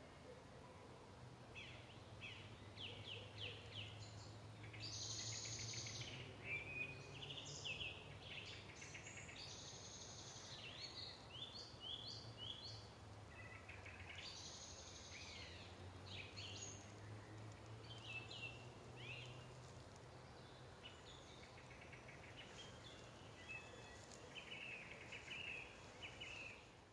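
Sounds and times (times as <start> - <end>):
birds singing: 1.6 - 26.8.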